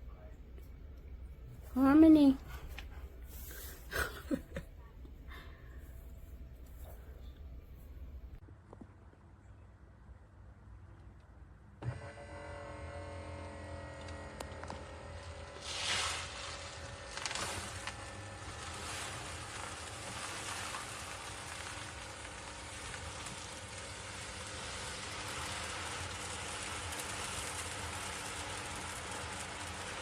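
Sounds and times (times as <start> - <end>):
cat litter rustling: 15.4 - 28.1.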